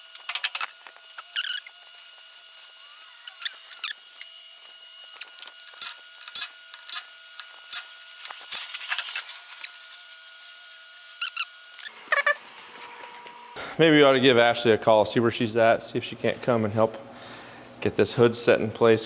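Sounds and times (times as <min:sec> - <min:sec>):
clicks of tools and metal parts: 0:00.1 - 0:01.9.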